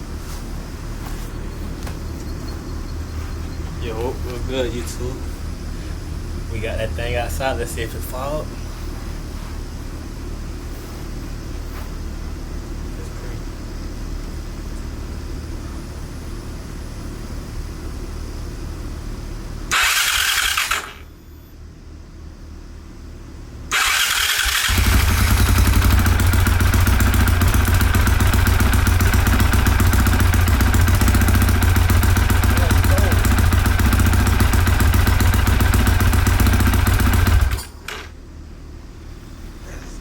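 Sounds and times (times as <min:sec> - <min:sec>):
steady low rumble: 0:00.0 - 0:10.7
motorcycle engine starting and running: 0:19.7 - 0:21.1, 0:23.7 - 0:38.2.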